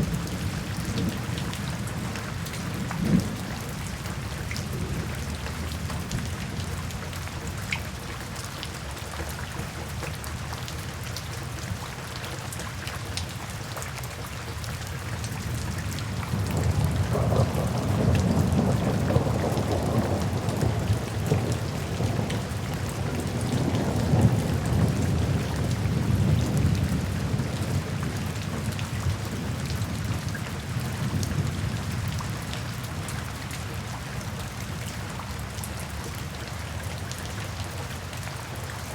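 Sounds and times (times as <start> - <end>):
low rumble of thunder: 0.0 - 7.6, 15.3 - 36.2
steady rain falling: 0.0 - 38.9.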